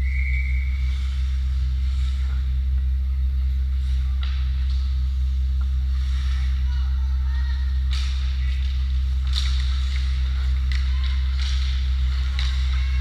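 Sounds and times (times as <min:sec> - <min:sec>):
steady low hum: 0:00.0 - 0:13.0
faint voices: 0:02.0 - 0:13.0
skate blades scraping ice: 0:07.5 - 0:13.0.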